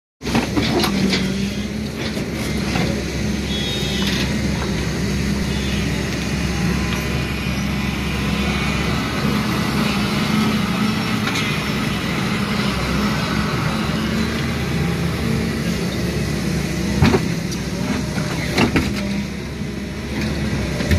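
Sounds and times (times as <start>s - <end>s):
diesel engine running: 0.2s - 20.9s.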